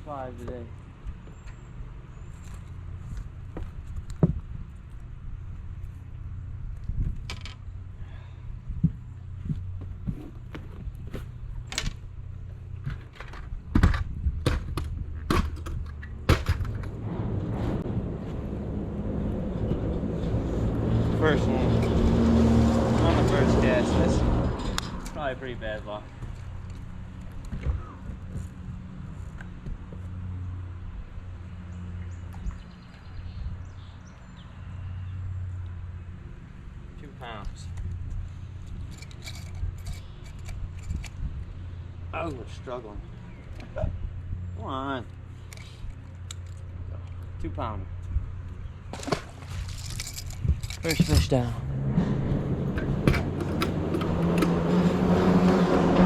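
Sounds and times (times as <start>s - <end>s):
low engine hum: 0.0s - 56.0s
sharp knocks and clunks: 12.8s - 17.5s, 52.0s - 55.6s
boat motor humming: 16.6s - 25.0s, 48.2s - 56.0s.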